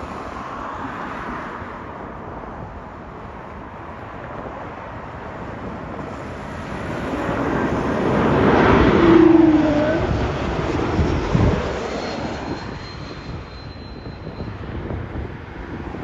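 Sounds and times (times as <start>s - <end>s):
jet engines rushing: 0.0s - 16.0s
tone sliding down in pitch: 8.6s - 10.2s.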